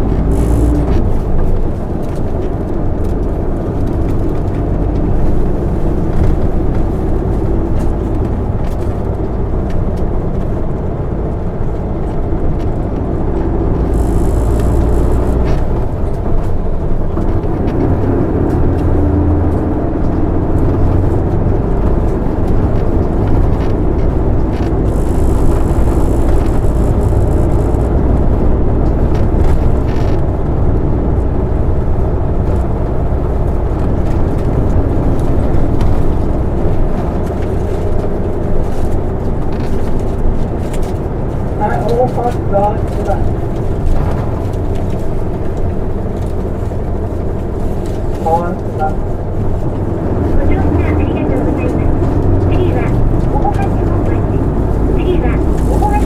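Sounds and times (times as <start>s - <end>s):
bus diesel engine running: 0.0s - 56.0s
road noise: 0.0s - 56.0s.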